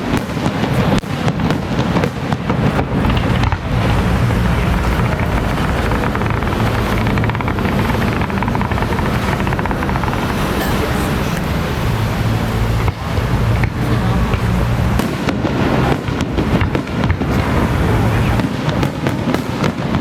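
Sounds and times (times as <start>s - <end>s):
firecrackers crackling rapidly: 0.0s - 20.0s
heavy low rumble: 2.8s - 15.8s.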